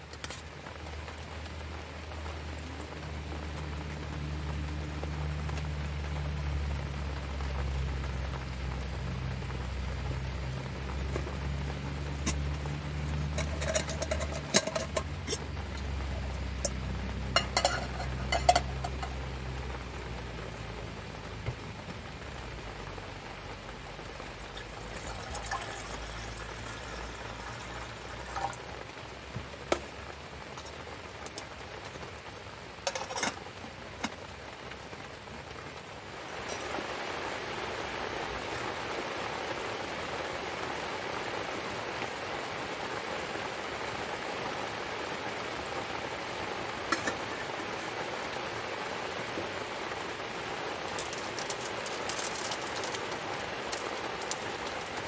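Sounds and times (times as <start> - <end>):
low steady hum: 0.0 - 37.2
rain falling: 0.0 - 55.0
pots and utensils clinking: 12.0 - 19.3, 24.5 - 28.6, 32.8 - 34.2, 46.9 - 47.4, 50.9 - 55.0.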